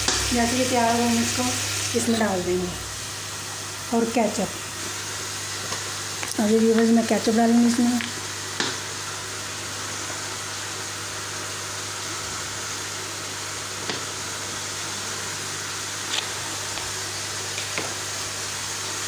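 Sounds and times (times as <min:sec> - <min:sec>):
food frying in a pan: 0:00.0 - 0:19.0.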